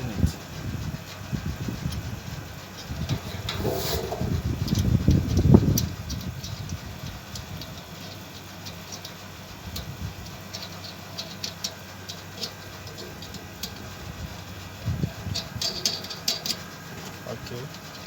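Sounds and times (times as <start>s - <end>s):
metal parts being handled: 3.0s - 5.4s, 10.2s - 14.5s, 15.3s - 18.0s
screw being tightened: 3.0s - 6.7s.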